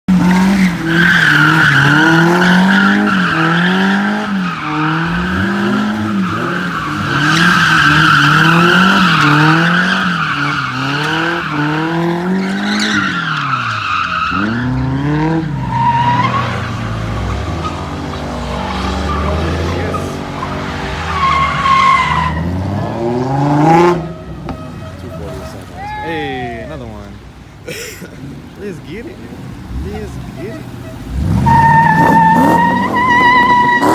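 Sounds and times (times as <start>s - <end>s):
car engine revving: 0.1s - 33.9s
tires squealing: 0.1s - 33.9s.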